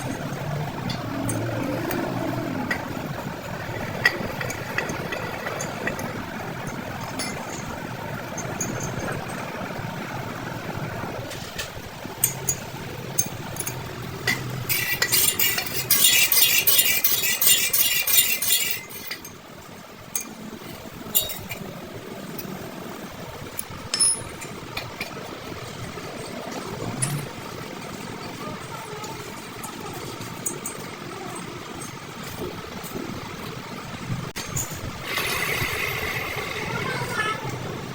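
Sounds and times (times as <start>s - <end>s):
rapid metallic rattle: 0.0s - 37.9s
metal tools clinking: 4.0s - 7.8s, 8.4s - 9.5s, 12.2s - 19.4s, 21.1s - 21.6s, 23.6s - 25.1s.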